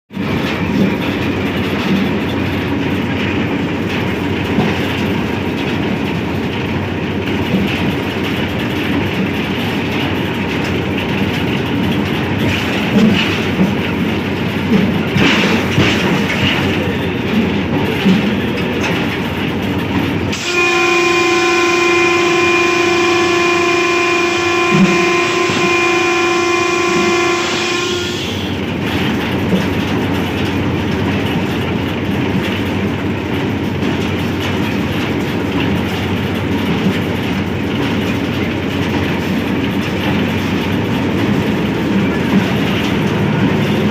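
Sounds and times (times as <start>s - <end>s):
locomotive rumbling: 0.1s - 43.9s
wheels clacking over track: 0.1s - 43.9s
multi-tone train horn blast: 20.3s - 29.3s, 39.7s - 43.9s.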